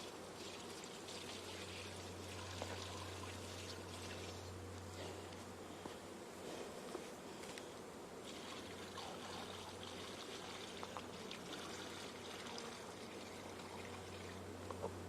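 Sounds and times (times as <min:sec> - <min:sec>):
liquid pouring: 0:00.0 - 0:04.4, 0:08.2 - 0:14.4
low hum: 0:00.0 - 0:15.0.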